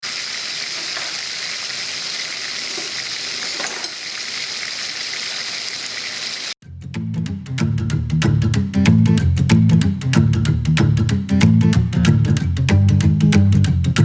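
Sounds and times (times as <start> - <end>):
meat sizzling in hot oil: 0.0 - 6.6.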